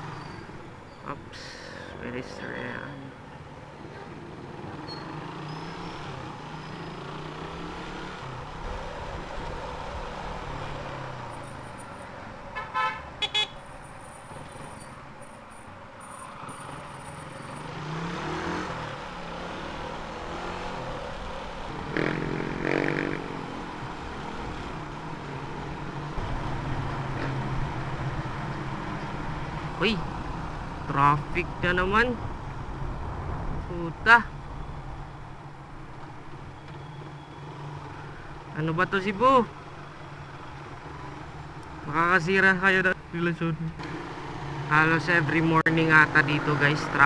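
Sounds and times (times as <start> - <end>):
motorcycle engine: 3.8 - 15.4, 16.0 - 31.0, 43.6 - 45.4
vehicle horn honks: 12.5 - 13.6.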